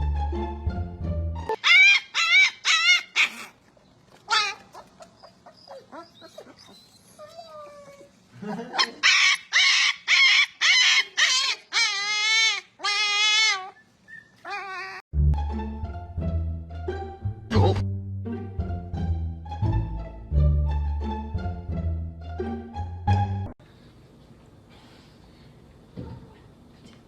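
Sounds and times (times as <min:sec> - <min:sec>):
dog whining: 0:01.5 - 0:03.6, 0:04.2 - 0:15.0.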